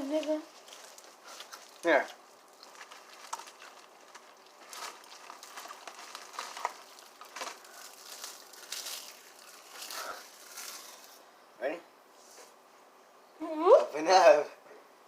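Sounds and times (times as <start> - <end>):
snack packaging crinkling: 0.0 - 11.2.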